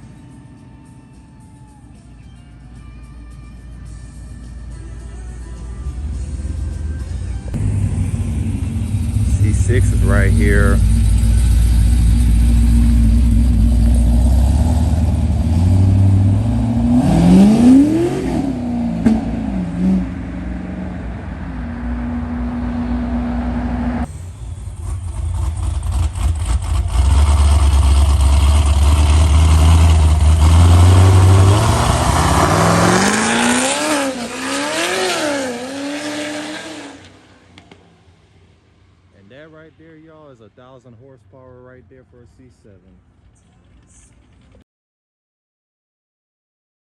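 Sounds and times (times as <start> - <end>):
car engine rumbling and revving: 4.8 - 44.6
car engines revving: 5.8 - 43.2.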